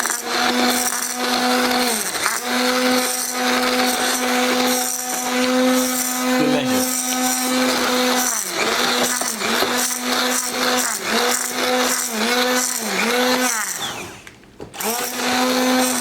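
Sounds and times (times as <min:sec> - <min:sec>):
electric mixer humming: 0:00.0 - 0:16.0.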